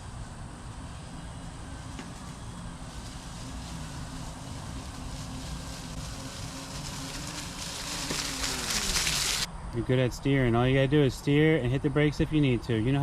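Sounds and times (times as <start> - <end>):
small motorbike motor humming: 0.0 - 9.5.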